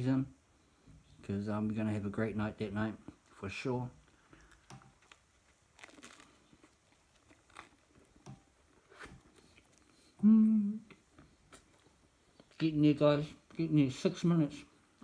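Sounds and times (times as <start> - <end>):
chewing and crunching crust: 4.0 - 10.2
short vocal sound: 10.1 - 11.1.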